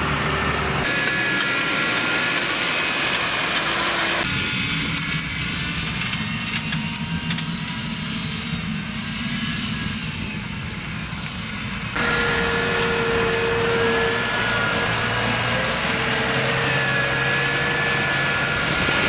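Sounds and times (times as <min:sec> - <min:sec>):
tractor engine running: 0:00.0 - 0:06.6, 0:11.7 - 0:19.0
engine whine: 0:00.0 - 0:19.0.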